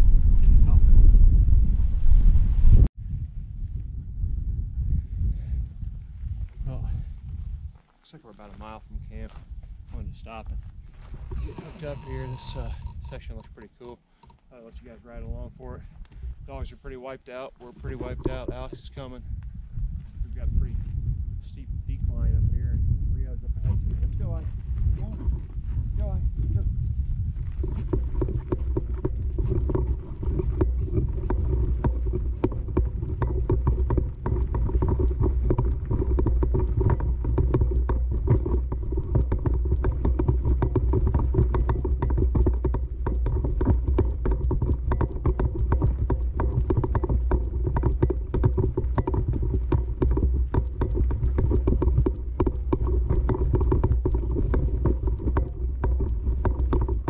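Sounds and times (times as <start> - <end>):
low rumble: 0.0 - 7.7, 17.8 - 57.0
bike and trailer rattling: 10.3 - 15.4, 17.6 - 19.2, 27.2 - 57.0.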